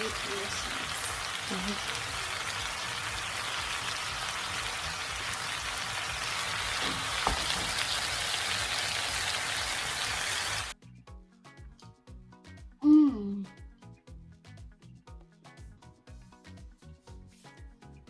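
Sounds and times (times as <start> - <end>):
food sizzling in a hot pan: 0.0 - 10.8.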